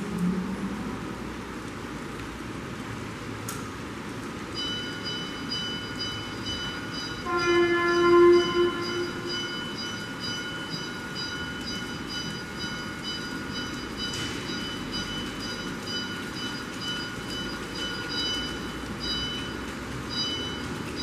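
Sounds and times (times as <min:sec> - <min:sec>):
train horn: 0:07.2 - 0:09.5.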